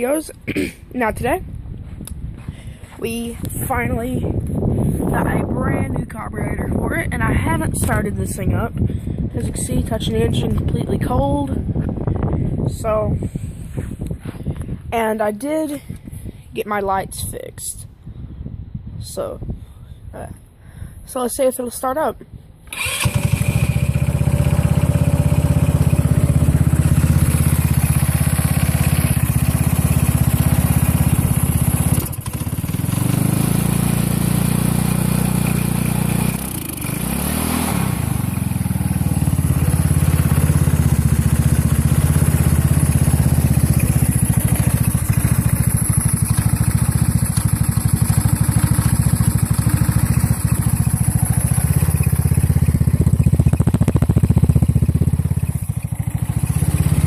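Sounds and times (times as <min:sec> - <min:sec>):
go-kart engine sputtering: 0:22.7 - 0:57.0.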